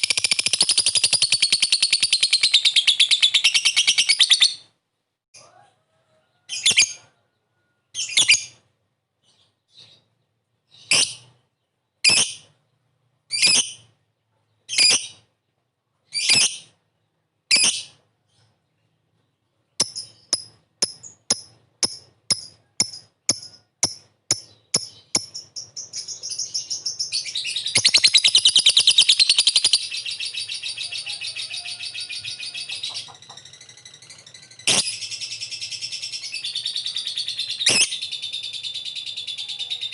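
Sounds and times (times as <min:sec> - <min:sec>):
rapid chattering bird trill: 0:00.0 - 0:04.5, 0:19.8 - 0:39.9
lovebird calling: 0:19.8 - 0:33.5.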